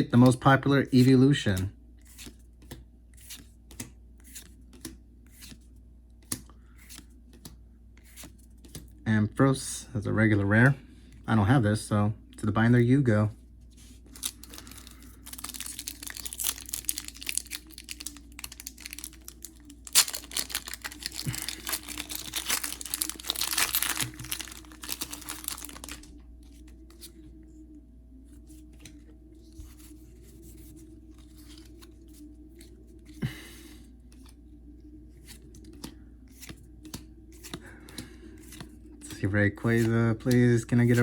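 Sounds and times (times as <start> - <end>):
foil wrapper tearing and crinkling: 14.1 - 26.1.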